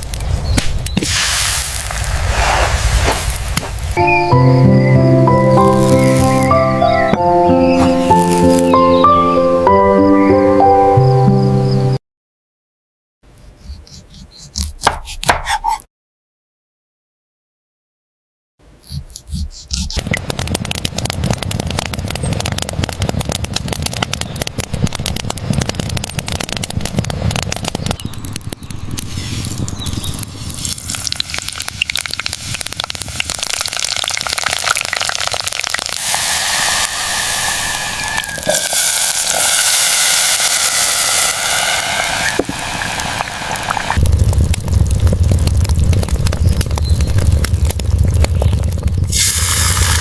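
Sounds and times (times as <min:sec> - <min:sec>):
heavy rain pouring: 0:05.1 - 0:08.9, 0:34.0 - 0:50.0
wavering whistle: 0:37.4 - 0:42.1
deep low rumble: 0:41.3 - 0:50.0.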